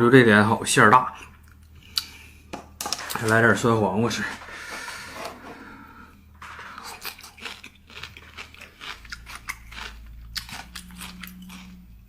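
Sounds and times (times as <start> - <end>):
person chewing crisp food: 6.4 - 12.0.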